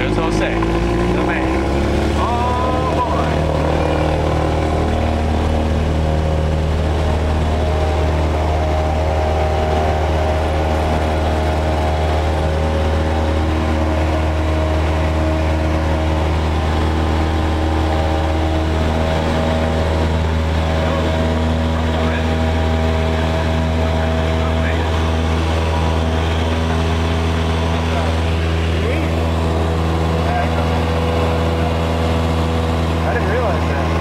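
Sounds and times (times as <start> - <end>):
airplane propeller engine running: 0.0 - 34.0.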